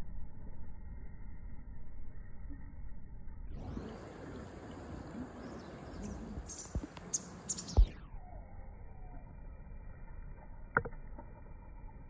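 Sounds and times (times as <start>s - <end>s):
outdoor background hiss: 3.6s - 10.2s
high bird chirps: 5.4s - 9.2s.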